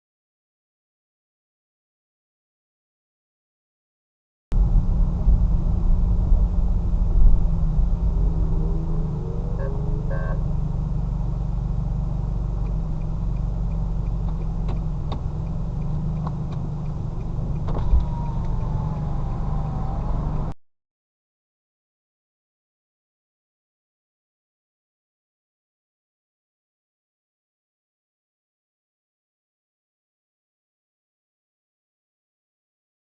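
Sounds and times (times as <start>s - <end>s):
car engine and road noise: 4.5s - 20.6s
faint falling whine: 4.6s - 11.6s, 16.6s - 20.6s.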